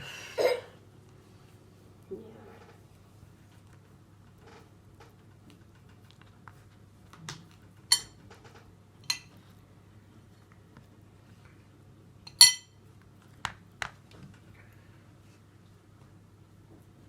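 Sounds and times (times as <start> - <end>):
dishes clinking: 7.9 - 8.2, 9.0 - 9.4, 12.3 - 12.8.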